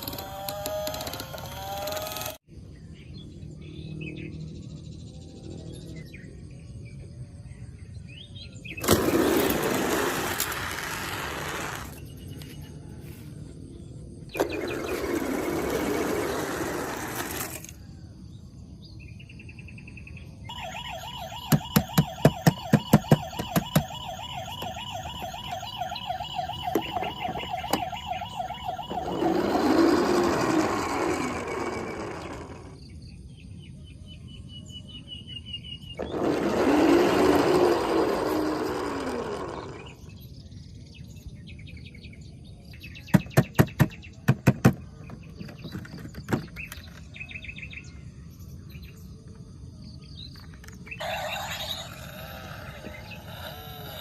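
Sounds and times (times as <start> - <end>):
electronic siren warbling: 20.5 - 32.8, 36.0 - 40.0, 51.0 - 54.0.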